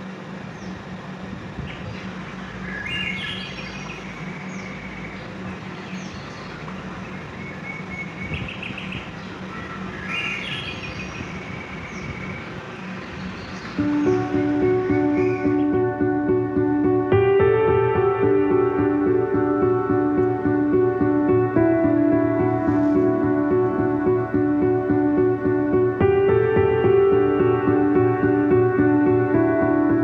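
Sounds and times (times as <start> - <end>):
birds chirping: 1.7 - 30.0
low hum: 11.3 - 30.0
background hiss: 12.8 - 30.0.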